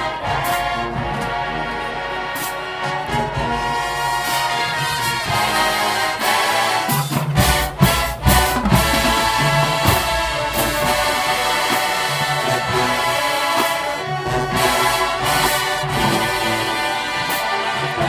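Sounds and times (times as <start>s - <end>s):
marching band brass chords: 0.0s - 18.0s
loud percussion hits: 7.0s - 16.6s.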